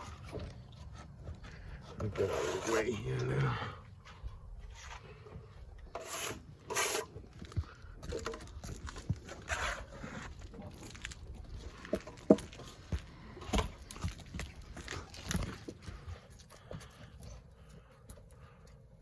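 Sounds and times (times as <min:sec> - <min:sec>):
scraping and rubbing: 0:01.6 - 0:03.1, 0:05.9 - 0:07.3, 0:08.1 - 0:13.9.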